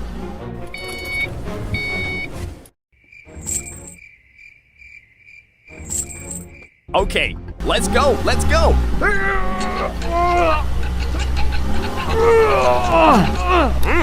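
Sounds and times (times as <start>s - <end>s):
cartoon background music: 0.0s - 4.0s, 5.7s - 14.0s
short electronic beeps: 0.7s - 2.4s.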